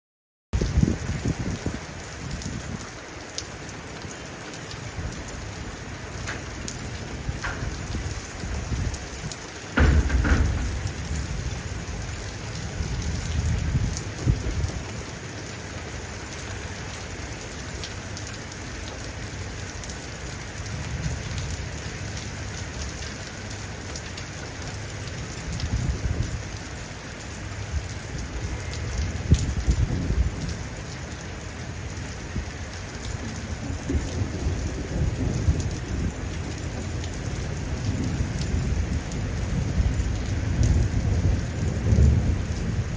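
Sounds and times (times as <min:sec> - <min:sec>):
steady rain falling: 0:00.6 - 0:42.9
thunder rumbling: 0:04.8 - 0:15.2, 0:27.7 - 0:30.8, 0:33.2 - 0:42.9
sharp thunder crack: 0:09.7 - 0:11.9.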